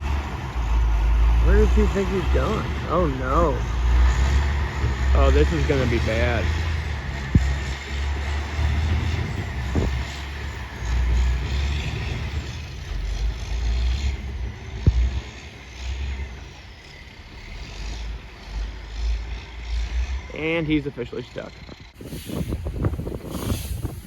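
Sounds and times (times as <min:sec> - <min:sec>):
truck diesel engine rumbling: 0:00.0 - 0:24.0.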